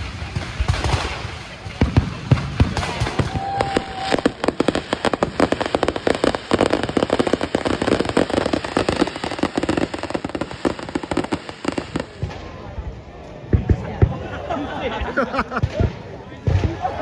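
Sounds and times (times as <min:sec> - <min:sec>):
fireworks bangs and crackles: 0:00.0 - 0:17.0
firework whistle: 0:02.8 - 0:12.2.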